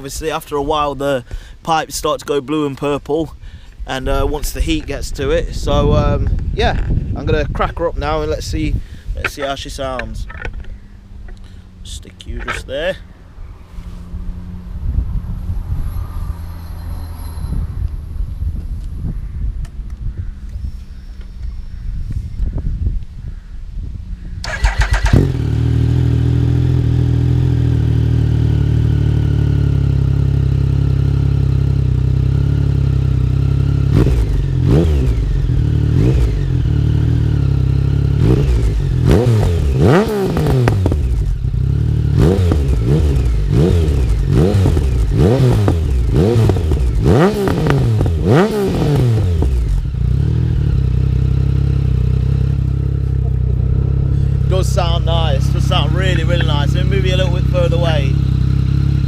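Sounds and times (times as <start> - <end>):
motorcycle engine idling: 8.8 - 13.5, 24.0 - 48.4, 49.0 - 59.0
motorcycle engine revving: 24.1 - 59.0.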